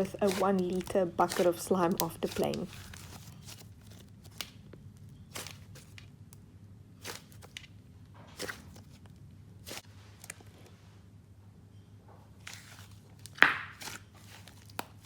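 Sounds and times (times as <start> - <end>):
hands squishing slime: 0.0 - 3.6, 8.4 - 9.0, 12.4 - 15.0.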